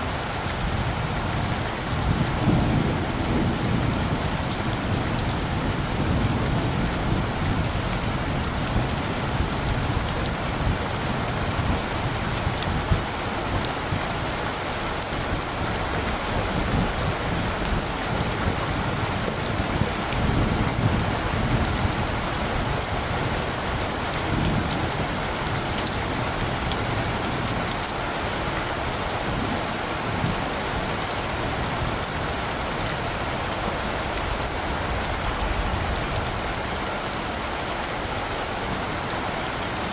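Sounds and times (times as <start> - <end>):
steady rain falling: 0.0 - 39.9
low rumble of thunder: 0.1 - 37.1.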